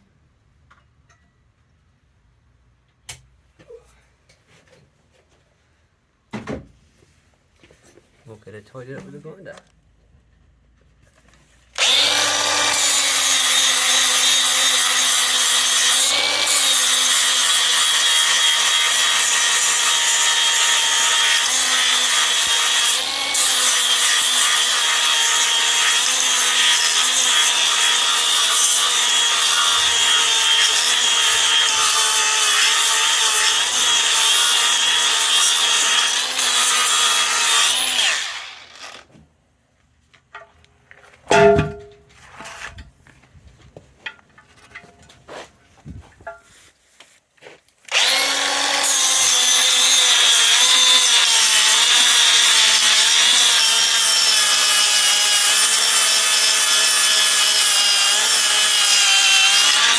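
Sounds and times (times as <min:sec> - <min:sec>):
angle grinder grinding steel: 0:11.8 - 0:39.1, 0:47.9 - 0:59.9.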